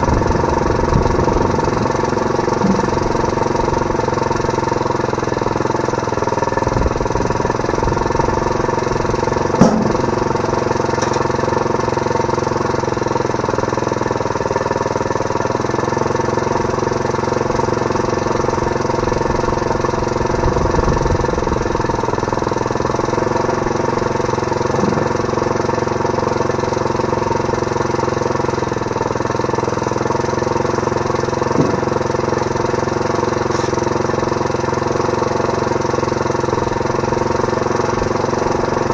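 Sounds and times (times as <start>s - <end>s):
small engine running: 0.0s - 38.9s
sharp knock: 9.6s - 10.3s.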